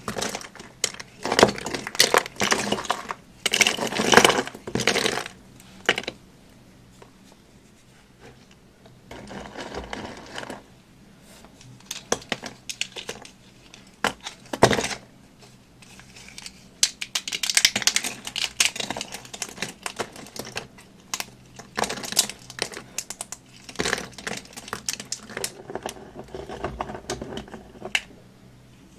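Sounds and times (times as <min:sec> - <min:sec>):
dry material crunching by hand: 0:15.9 - 0:28.0.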